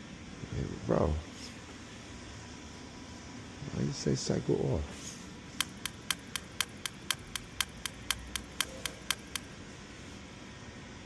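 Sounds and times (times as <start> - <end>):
rapid mechanical clicking: 5.6 - 9.6.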